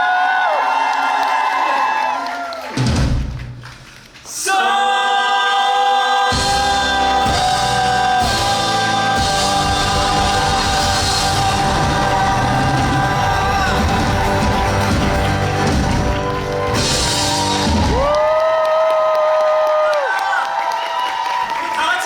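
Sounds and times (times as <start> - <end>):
drums: 2.6 - 4.4, 6.2 - 19.2
live band music: 6.3 - 18.3
bass: 6.3 - 18.5.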